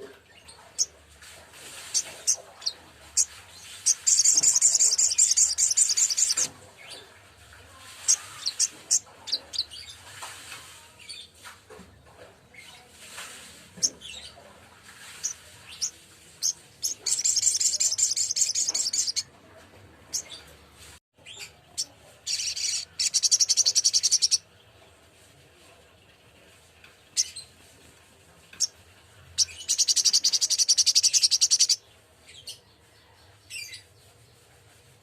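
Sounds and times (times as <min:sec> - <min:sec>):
bird chirping and trilling: 0:01.9 - 0:07.0, 0:15.1 - 0:19.3, 0:21.2 - 0:24.4, 0:29.4 - 0:31.8.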